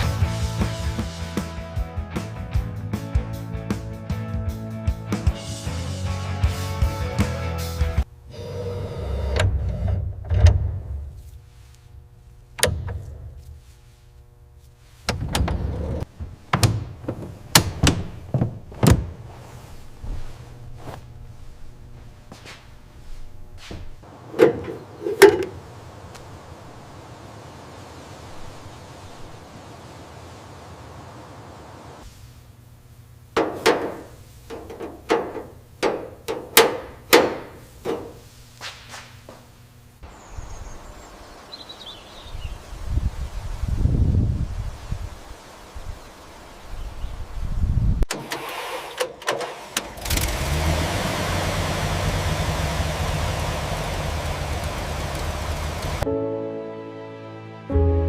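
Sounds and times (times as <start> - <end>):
low steady hum: 8.0 - 44.8
knocks and clunks: 15.0 - 19.3, 23.7 - 25.6, 33.4 - 38.2.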